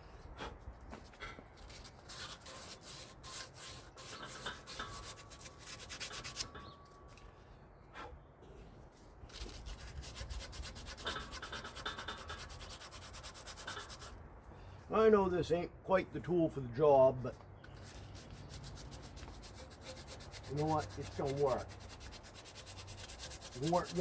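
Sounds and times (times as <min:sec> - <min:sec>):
sanding strokes on metal: 0:01.8 - 0:06.6, 0:09.3 - 0:14.2, 0:17.8 - 0:24.0.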